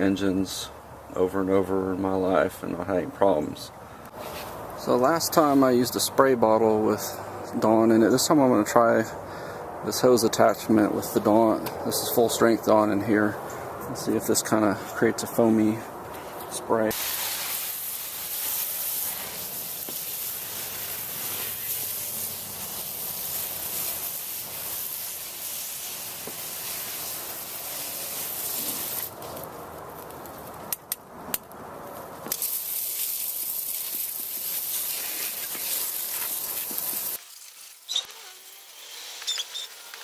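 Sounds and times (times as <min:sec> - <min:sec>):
hose sprayer hissing: 0:16.9 - 0:29.4, 0:32.3 - 0:40.0.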